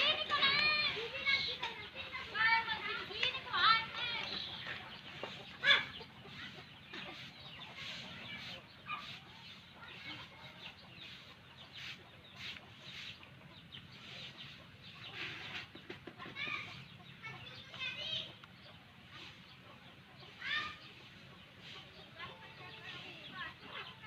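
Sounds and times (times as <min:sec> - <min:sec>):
crow chicks begging calls: 0:00.0 - 0:24.0.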